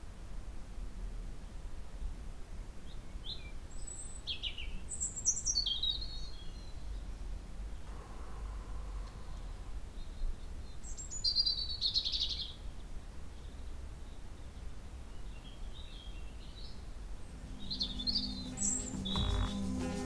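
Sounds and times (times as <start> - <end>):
low outdoor rumble: 6.6 - 10.9, 16.8 - 20.0
birds chirping: 14.3 - 20.0
rapid bird trill: 17.3 - 20.0.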